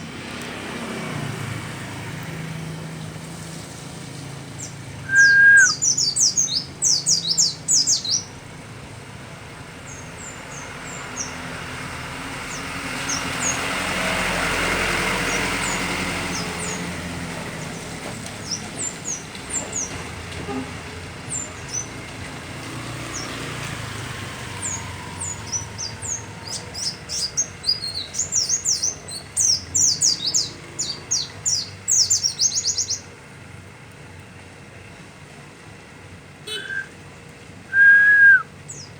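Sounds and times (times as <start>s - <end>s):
bird chirping: 4.6s - 8.3s, 24.6s - 33.1s
broad rush of noise: 5.0s - 5.9s.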